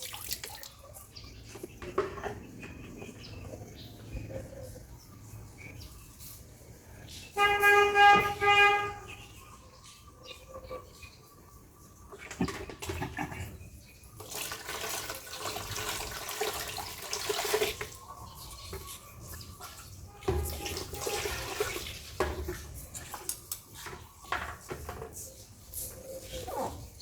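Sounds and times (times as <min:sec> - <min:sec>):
water running and splashing: 0:00.0 - 0:01.2, 0:12.3 - 0:24.8.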